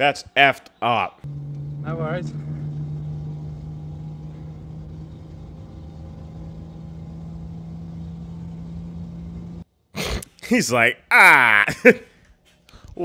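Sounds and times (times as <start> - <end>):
car engine cruising drone: 1.2 - 9.6.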